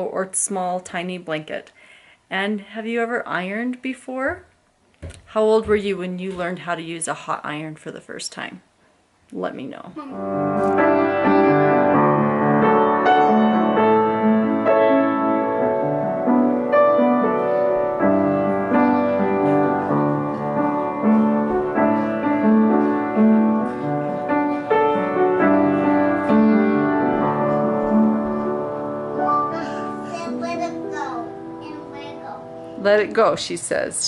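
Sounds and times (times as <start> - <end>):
piano music: 10.1 - 34.0.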